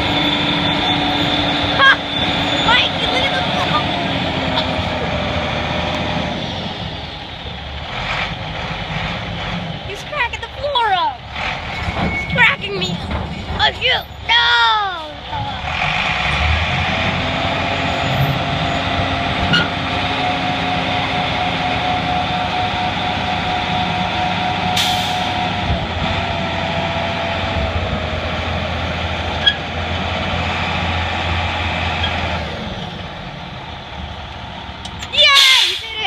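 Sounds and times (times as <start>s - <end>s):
truck engine under load: 0.0s - 36.0s.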